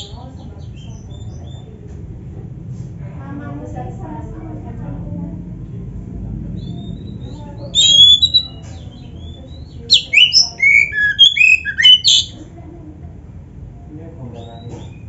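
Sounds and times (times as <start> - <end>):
bird singing whistled notes: 6.6 - 12.4.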